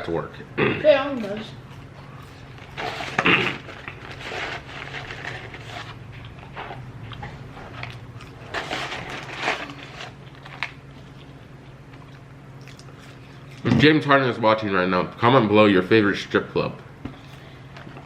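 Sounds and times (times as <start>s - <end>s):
chewing and biting food: 5.8s - 8.5s, 10.1s - 13.7s.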